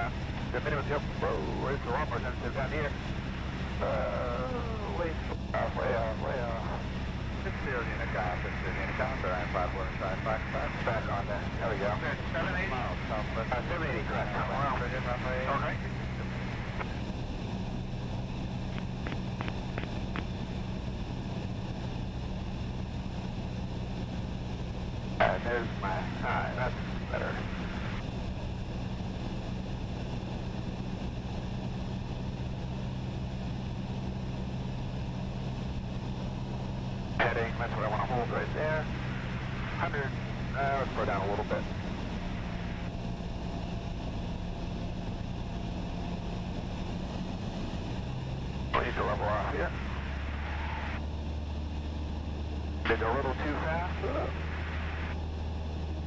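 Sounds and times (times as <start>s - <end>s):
airplane engine and propeller droning: 0.0s - 56.0s.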